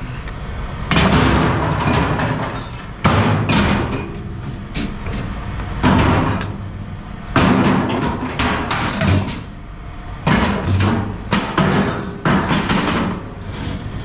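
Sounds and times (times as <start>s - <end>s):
scrap metal clanking: 0.9s - 6.5s, 10.3s - 14.0s.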